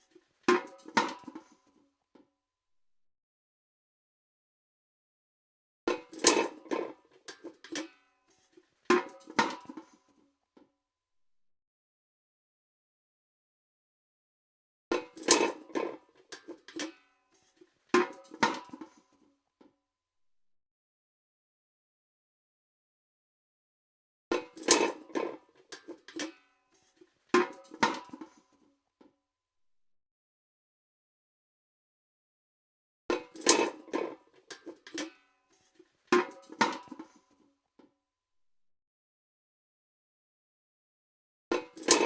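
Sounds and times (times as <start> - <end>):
steel bucket clanking: 5.9 - 10.0, 15.0 - 19.0, 24.3 - 28.4, 33.1 - 35.2, 41.5 - 42.0.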